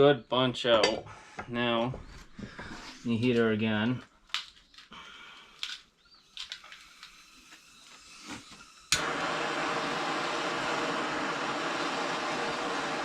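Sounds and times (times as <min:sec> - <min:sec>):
gas torch hissing: 0:06.2 - 0:13.0
gas torch igniting click: 0:06.4 - 0:09.6.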